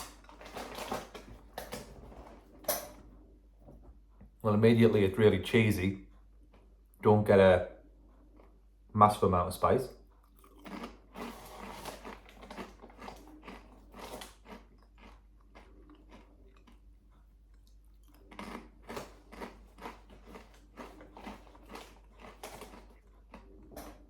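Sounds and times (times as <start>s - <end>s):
person crunching chips: 10.3s - 24.0s.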